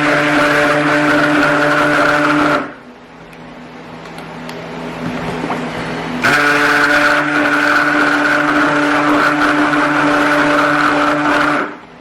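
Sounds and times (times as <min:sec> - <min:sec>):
stick blender running: 0:00.0 - 0:02.9, 0:05.5 - 0:12.0.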